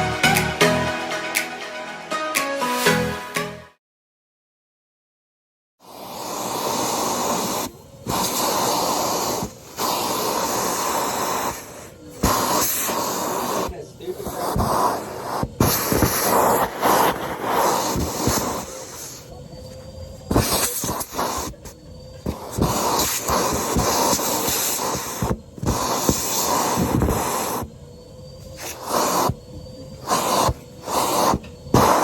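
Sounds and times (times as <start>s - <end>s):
vacuum cleaner running: 5.8s - 32.0s.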